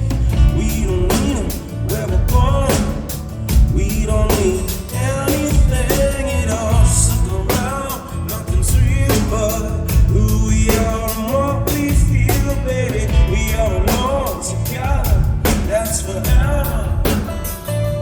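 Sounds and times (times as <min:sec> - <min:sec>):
bass guitar: 0:00.0 - 0:18.0
drum kit beat: 0:00.0 - 0:18.0
electric guitars: 0:00.0 - 0:18.0
person singing: 0:00.0 - 0:18.0.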